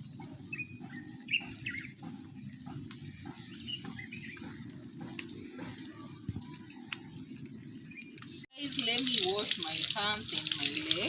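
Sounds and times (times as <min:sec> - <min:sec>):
small bird chirping: 0:00.0 - 0:08.4
low outdoor ambience: 0:00.0 - 0:11.0.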